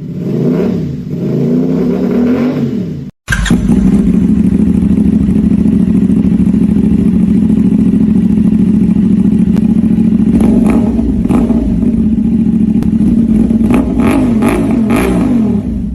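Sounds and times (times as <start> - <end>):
motorcycle engine running: 0.0 - 15.9
exhaust cracks: 3.2 - 7.0.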